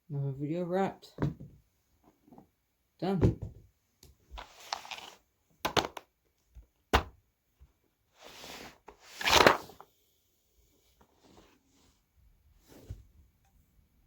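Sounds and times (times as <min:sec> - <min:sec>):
rustling and scraping: 0:04.4 - 0:05.2, 0:08.2 - 0:09.8, 0:10.9 - 0:13.2.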